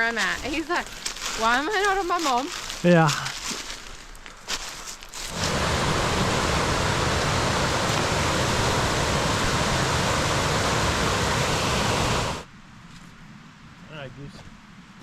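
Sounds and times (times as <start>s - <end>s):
falling water rushing: 5.2s - 12.5s.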